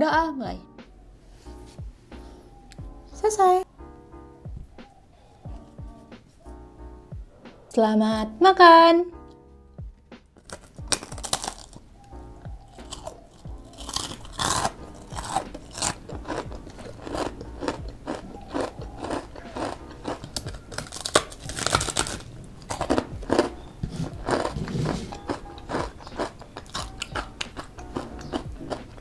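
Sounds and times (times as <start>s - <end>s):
crunchy food chewing: 10.4s - 29.0s.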